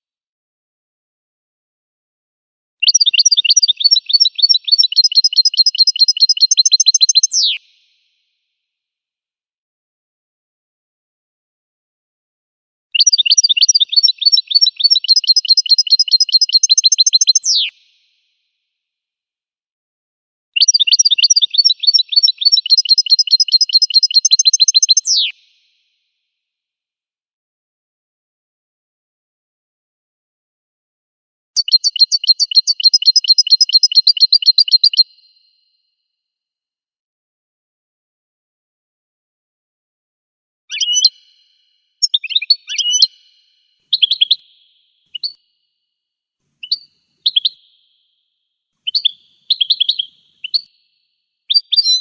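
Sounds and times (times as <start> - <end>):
bird singing high chirps: 2.8 - 7.6, 13.0 - 17.8, 20.6 - 25.4, 31.6 - 35.6, 40.7 - 45.7, 46.6 - 48.2, 48.8 - 52.0.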